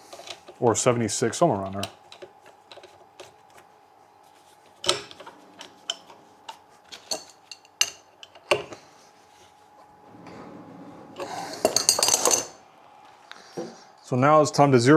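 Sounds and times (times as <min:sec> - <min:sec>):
metal tools clinking: 0:00.0 - 0:00.6, 0:04.8 - 0:09.0, 0:10.0 - 0:12.6
faint steady hum: 0:00.0 - 0:14.9.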